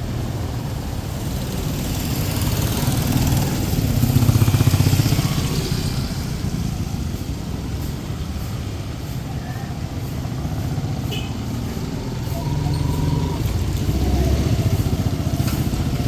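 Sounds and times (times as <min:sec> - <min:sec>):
small motorcycle engine passing: 0:01.2 - 0:06.4, 0:12.0 - 0:16.0.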